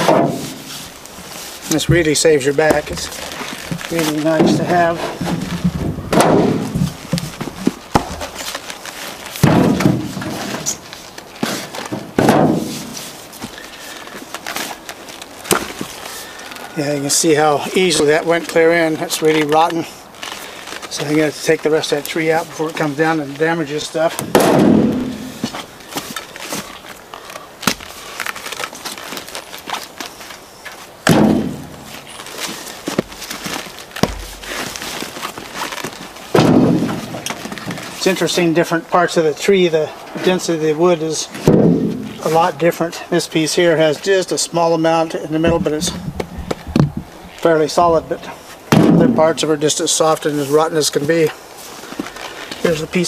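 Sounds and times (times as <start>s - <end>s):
footsteps: 0.0s - 38.7s, 41.2s - 42.8s, 45.0s - 53.0s
heavy ringing thud: 41.5s - 42.2s.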